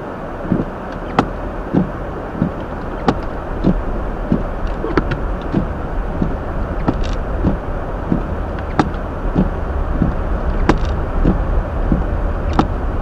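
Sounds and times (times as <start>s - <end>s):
road and tyre noise: 0.0s - 13.0s
soft regular thud: 0.5s - 12.9s.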